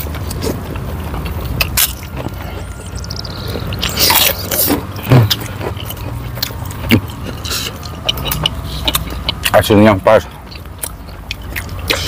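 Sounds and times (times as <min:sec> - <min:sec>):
chewing and lip-smacking: 0:00.0 - 0:12.0
mouth clicks: 0:01.2 - 0:09.6.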